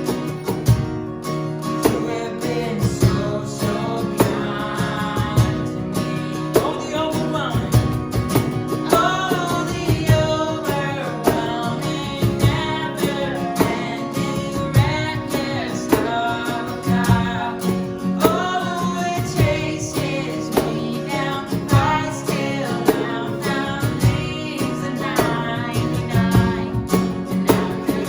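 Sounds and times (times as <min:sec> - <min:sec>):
strummed guitar: 0:00.0 - 0:28.0
person singing: 0:01.8 - 0:08.1, 0:08.7 - 0:28.0
worship band playing: 0:01.8 - 0:28.0.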